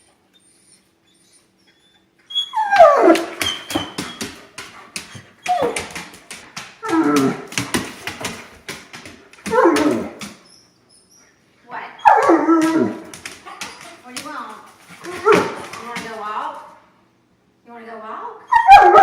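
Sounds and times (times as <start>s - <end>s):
dog whining and yowling: 0.0s - 4.4s, 5.1s - 6.0s, 9.5s - 11.4s, 12.0s - 14.0s, 18.5s - 19.0s.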